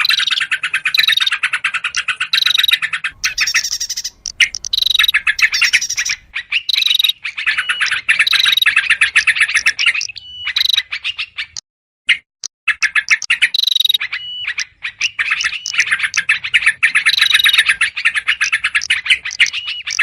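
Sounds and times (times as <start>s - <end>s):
birds chattering calls: 0.0s - 11.6s, 12.7s - 20.0s.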